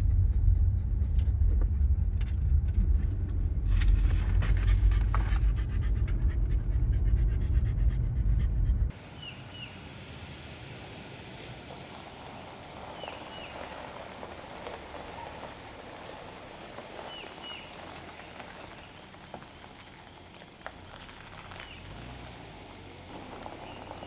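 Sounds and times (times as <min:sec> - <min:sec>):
heavy rain: 0:09.0 - 0:24.0
raindrop ticks: 0:11.7 - 0:22.2.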